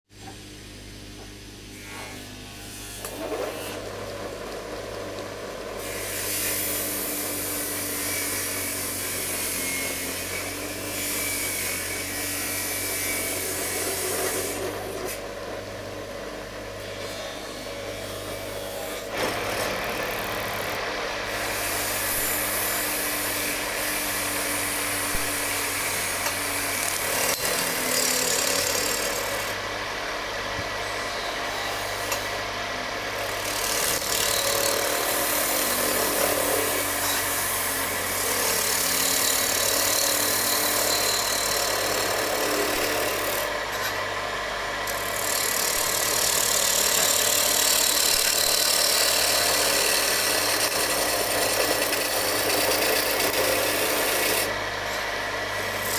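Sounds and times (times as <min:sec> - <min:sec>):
wood lathe motor hum: 0:02.8 - 0:55.9
cutting tool shaving wood: 0:18.0 - 0:29.6, 0:33.2 - 0:55.9.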